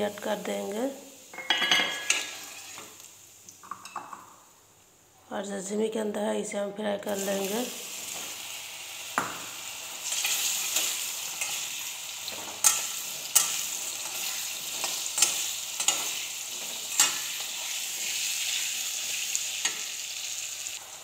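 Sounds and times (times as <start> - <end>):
vegetable cubes sizzling in oil: 0.0 - 3.7, 7.1 - 21.0
wooden spatula scraping pan: 2.0 - 3.0.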